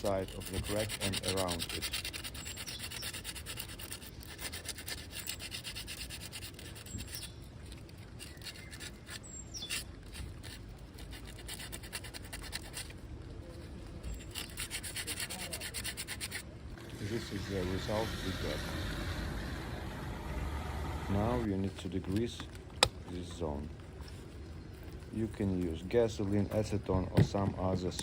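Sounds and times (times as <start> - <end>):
abrasive rubbing on metal: 0.0 - 12.9, 14.0 - 16.4.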